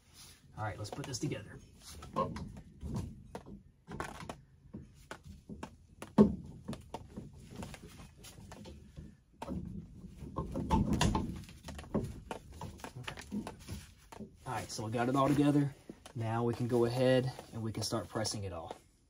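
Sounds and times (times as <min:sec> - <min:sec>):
pipe fittings clicking and knocking: 0:02.0 - 0:14.4.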